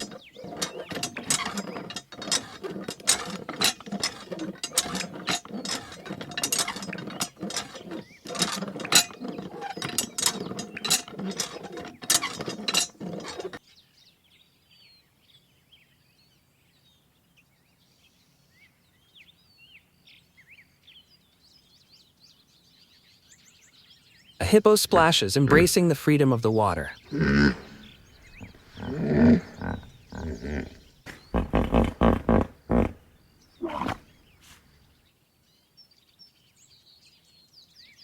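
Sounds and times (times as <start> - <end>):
toy water pump ratcheting clicks: 0.0 - 13.6.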